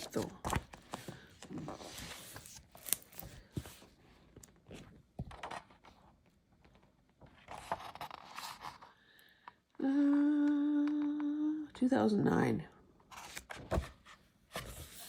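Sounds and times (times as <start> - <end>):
book pages turning: 0.0 - 6.0, 7.3 - 8.9, 13.1 - 15.0.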